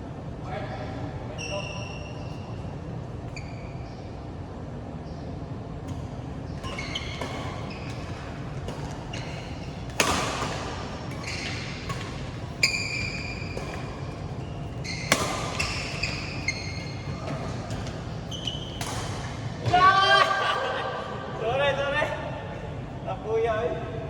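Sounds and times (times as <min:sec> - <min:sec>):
sneakers squeaking on court floor: 0:01.3 - 0:04.3, 0:05.0 - 0:19.9
rackets striking shuttlecock: 0:05.8 - 0:19.7.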